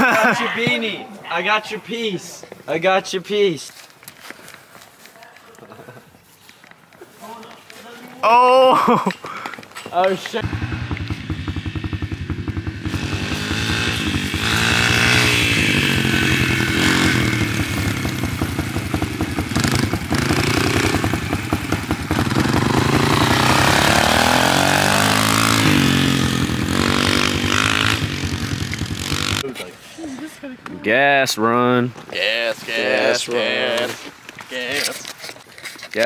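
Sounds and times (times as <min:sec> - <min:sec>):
dirt bike engine revving: 0:10.4 - 0:29.5.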